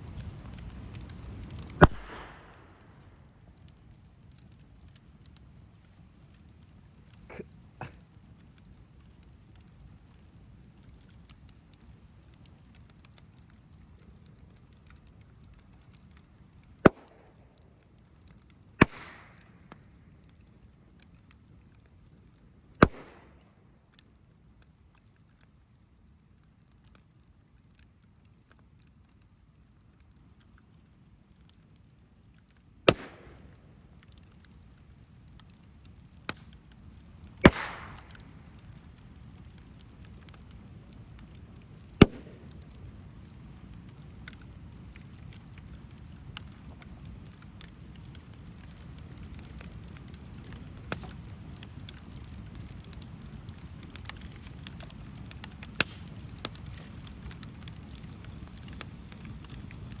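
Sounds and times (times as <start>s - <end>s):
bonfire crackling: 0.0s - 60.0s
sharp bangs in fire: 1.0s - 3.2s, 16.8s - 17.2s, 18.8s - 19.8s, 22.8s - 23.3s, 32.9s - 33.6s, 37.4s - 38.4s.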